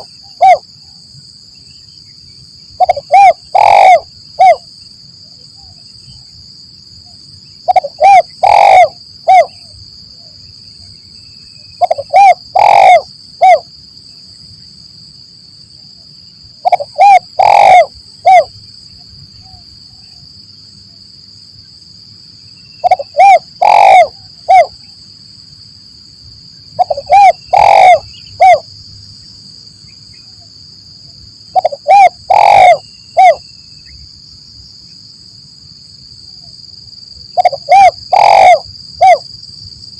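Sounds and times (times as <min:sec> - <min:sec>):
dove cooing: 0:00.0 - 0:00.6, 0:02.8 - 0:04.7, 0:07.7 - 0:09.7, 0:11.8 - 0:13.7, 0:16.6 - 0:18.5, 0:22.8 - 0:24.8, 0:26.8 - 0:28.6, 0:31.5 - 0:33.4, 0:37.3 - 0:39.2.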